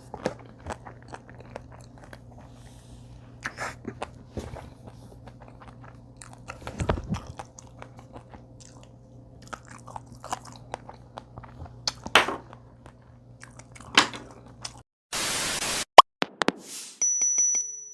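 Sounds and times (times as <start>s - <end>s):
crunchy chewing: 0.0s - 14.8s
burst of hiss: 15.2s - 15.9s.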